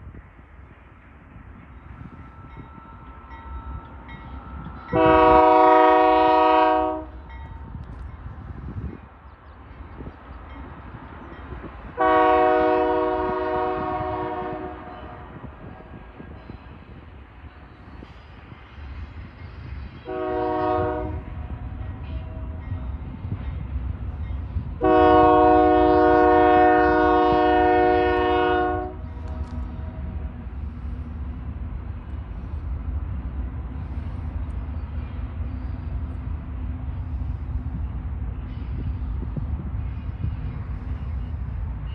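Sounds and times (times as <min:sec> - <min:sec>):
low rumble of train: 0:00.0 - 0:41.9
locomotive air horn: 0:04.9 - 0:07.2, 0:12.0 - 0:15.4, 0:20.0 - 0:21.7, 0:24.8 - 0:30.0.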